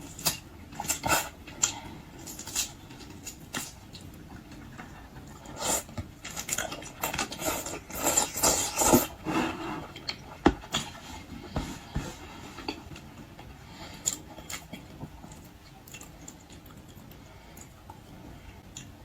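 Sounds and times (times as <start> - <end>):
wet chewing and smacking: 14.0 - 18.0.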